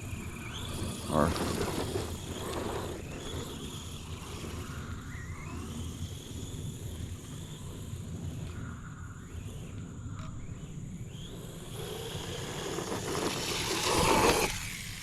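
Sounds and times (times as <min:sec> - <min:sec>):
electric motor whining: 0:11.2 - 0:15.0.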